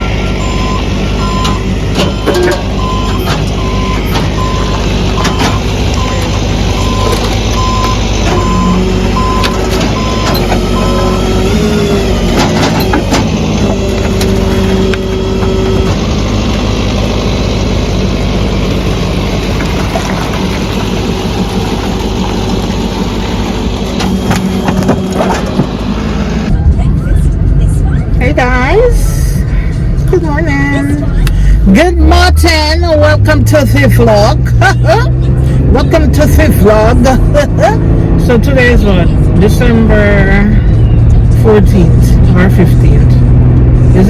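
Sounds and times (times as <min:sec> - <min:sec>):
reversing alarm beeping: 0:00.0 - 0:16.5, 0:22.8 - 0:26.5
engine rumble: 0:00.0 - 0:44.0.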